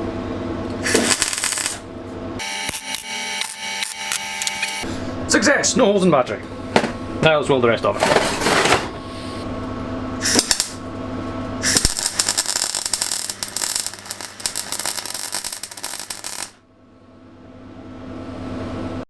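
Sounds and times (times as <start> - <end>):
steady electrical hum: 0.0 - 17.0
welding arc crackling: 0.8 - 1.8, 2.4 - 4.9, 10.2 - 10.8, 11.6 - 16.6.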